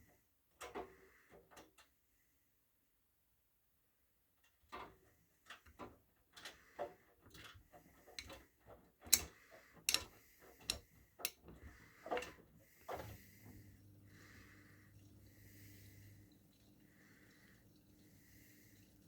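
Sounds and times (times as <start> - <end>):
clicks and knocks: 9.9 - 11.4
faint hiss: 12.8 - 19.0.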